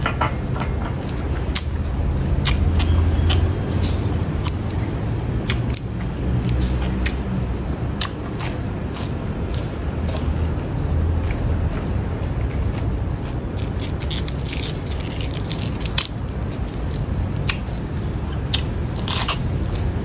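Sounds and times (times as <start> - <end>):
steady low rumble: 0.0 - 20.0
chewing crunchy leafy greens: 1.0 - 20.0
stems snapping: 1.5 - 1.7, 4.1 - 7.3, 8.0 - 10.4, 11.2 - 20.0.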